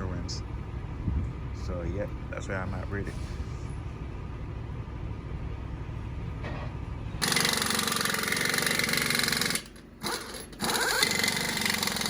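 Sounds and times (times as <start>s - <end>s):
diesel truck engine idling: 0.0s - 12.0s
mechanical buzzing rattle: 7.2s - 12.0s.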